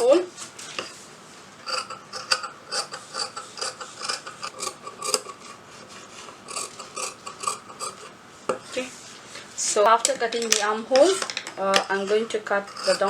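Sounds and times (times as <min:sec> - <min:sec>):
scissors cutting fabric: 0:01.7 - 0:05.5, 0:06.2 - 0:08.1, 0:11.8 - 0:13.0.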